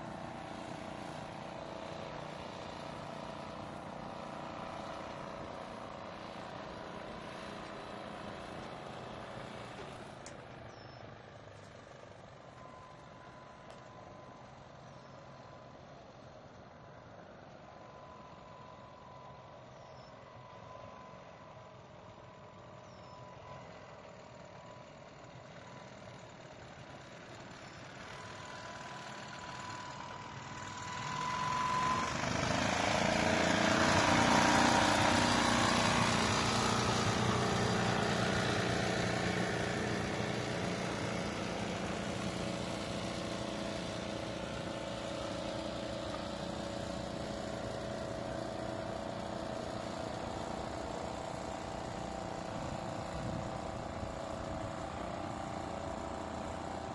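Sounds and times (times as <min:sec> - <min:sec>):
outboard boat engine running: 0:31.4 - 0:56.9.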